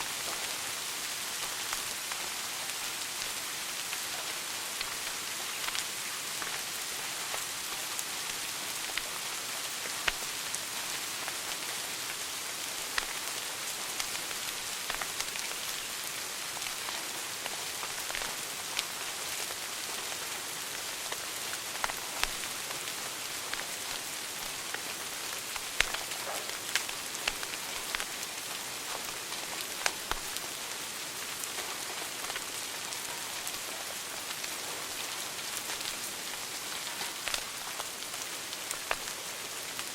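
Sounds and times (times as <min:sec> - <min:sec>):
wood fire crackling and popping: 0:07.3 - 0:09.3, 0:10.0 - 0:19.5, 0:21.0 - 0:39.9.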